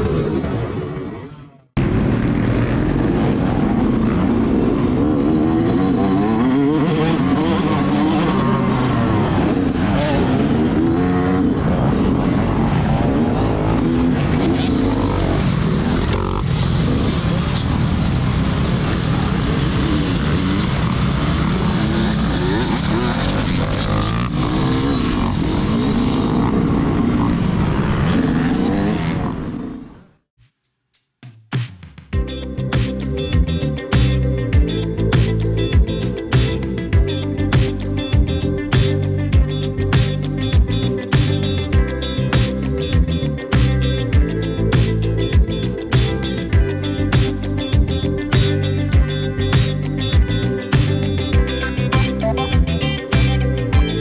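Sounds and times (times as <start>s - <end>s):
motocross bike engines revving: 0.0s - 30.0s
engine and track noise: 0.0s - 30.2s, 32.4s - 54.0s.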